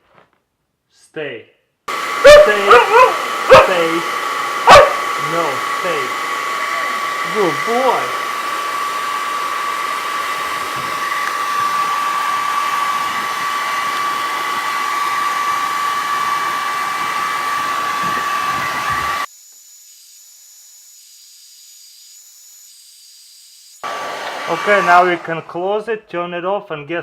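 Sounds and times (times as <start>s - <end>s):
hair dryer blowing with whine: 1.9s - 19.3s, 23.7s - 25.6s.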